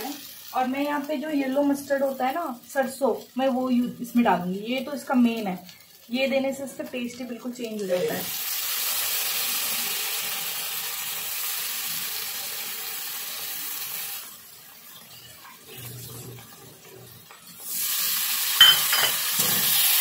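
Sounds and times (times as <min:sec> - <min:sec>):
food sizzling in oil: 0:00.0 - 0:20.0
spatula clinking against pan: 0:18.6 - 0:19.3.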